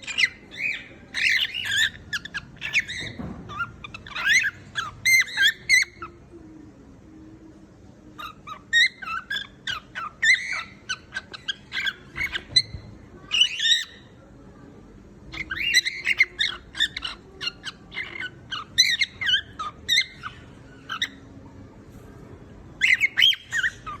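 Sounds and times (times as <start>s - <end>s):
cockatiel chirping and whistling: 0.0s - 6.1s, 8.2s - 14.0s, 15.4s - 21.2s, 22.8s - 24.0s.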